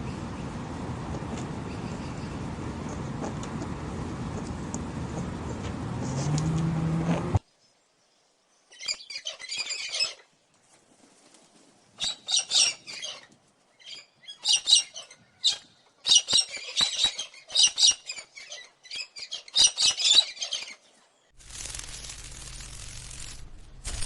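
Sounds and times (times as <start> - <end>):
steady hiss with low hum: 0.0 - 6.3, 21.4 - 24.0.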